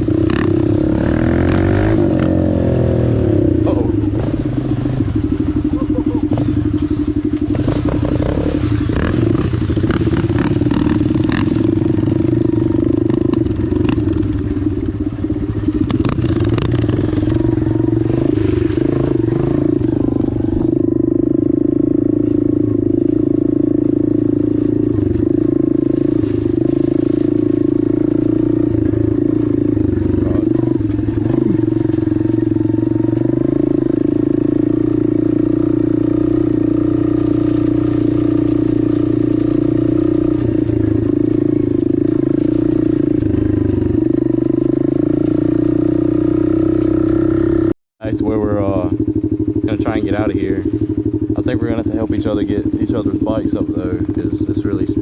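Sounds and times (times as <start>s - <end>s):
dirt bike engine running: 0.0s - 55.0s.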